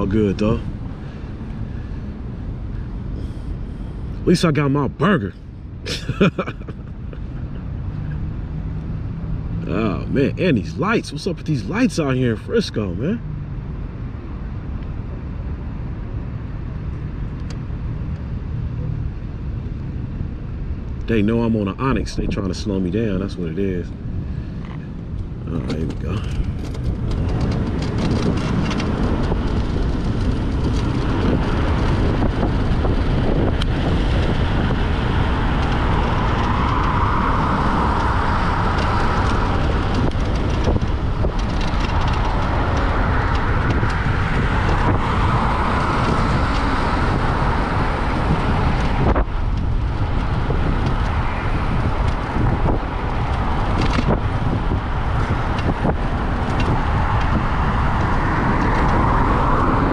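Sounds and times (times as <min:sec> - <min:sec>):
road and traffic noise: 0:00.0 - 0:59.9
wind buffeting microphone: 0:13.0 - 0:59.9.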